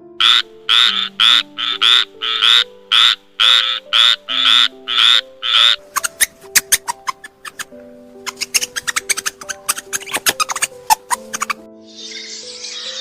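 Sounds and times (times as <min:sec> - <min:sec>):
soft background music: 0:00.0 - 0:13.0
frog croaking: 0:00.2 - 0:07.7.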